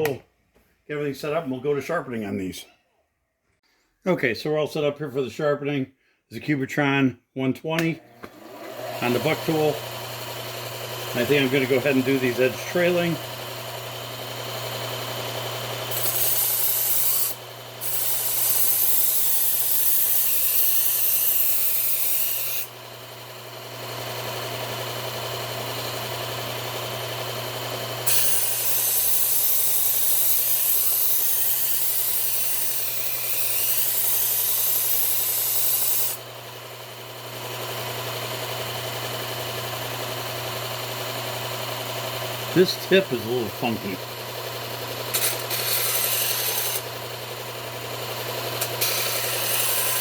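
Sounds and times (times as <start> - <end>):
motor hum: 8.0 - 18.2, 22.6 - 31.9, 36.1 - 50.0
knife grinding on belt grinder: 8.2 - 50.0.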